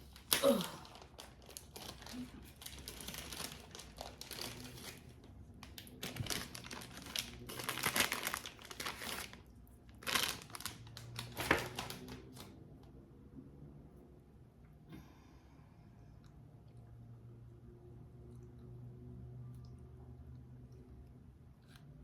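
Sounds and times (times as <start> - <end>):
snack wrapper crinkling: 0.0 - 12.5.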